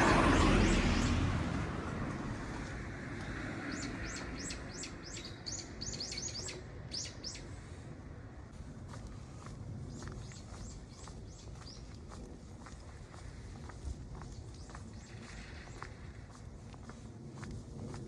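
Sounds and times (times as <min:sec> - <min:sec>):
vehicle passing: 0:00.0 - 0:05.9
small bird chirping: 0:03.7 - 0:07.4.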